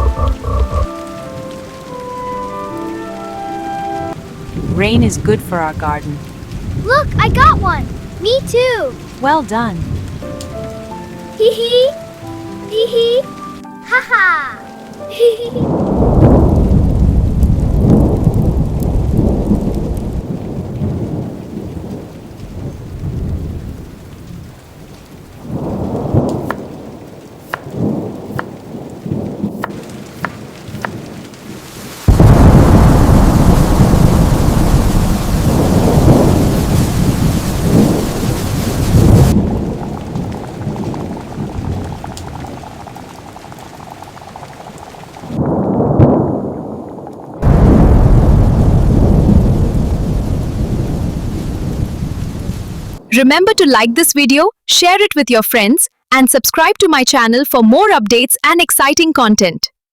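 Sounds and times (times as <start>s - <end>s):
loud thunderclap: 0.0s - 1.0s, 4.6s - 10.7s, 15.6s - 53.2s
thunder cracks: 0.0s - 1.1s, 4.5s - 10.7s, 15.6s - 53.2s
rolling thunder: 0.0s - 2.1s, 4.0s - 11.2s, 15.6s - 53.1s
steady rain: 0.0s - 54.2s.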